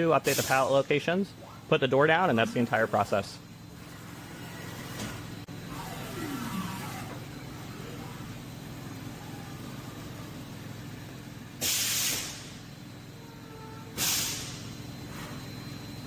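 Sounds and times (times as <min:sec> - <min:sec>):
machine hum: 0:00.0 - 0:11.6
falling motor whine: 0:02.2 - 0:10.6
hissing air burst: 0:11.6 - 0:12.6, 0:14.0 - 0:14.7.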